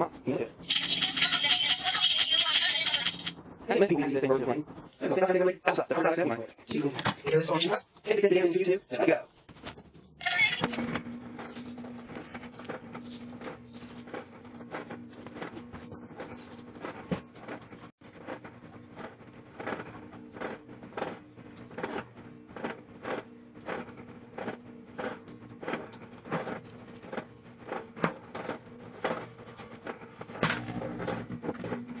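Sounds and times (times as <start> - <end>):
microwave oven humming: 10.6 - 32.0.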